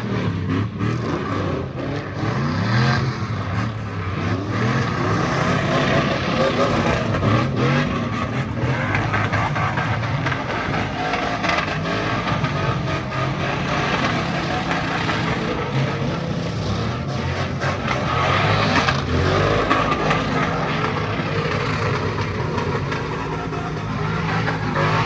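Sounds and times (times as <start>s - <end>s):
car engine revving hard: 0.0s - 25.0s.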